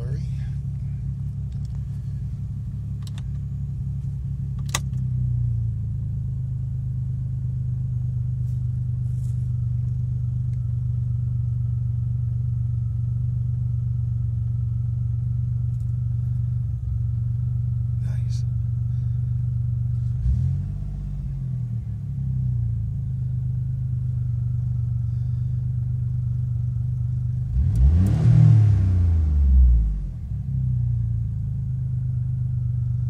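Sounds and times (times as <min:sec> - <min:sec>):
car engine idling: 0:00.0 - 0:33.0
sharp click: 0:04.6 - 0:05.0.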